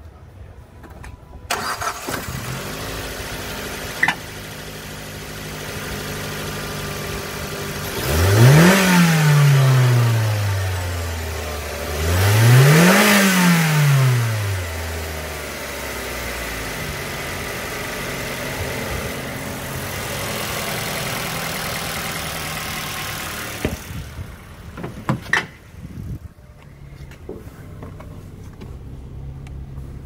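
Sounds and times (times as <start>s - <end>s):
car engine revving and idling: 1.7s - 25.1s.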